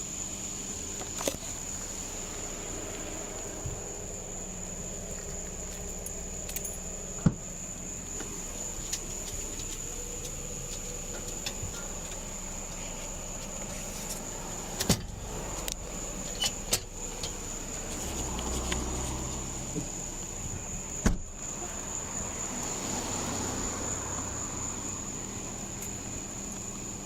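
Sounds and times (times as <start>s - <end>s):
background hum: 0.0s - 27.0s
sharp clicks and jingles: 4.8s - 12.4s.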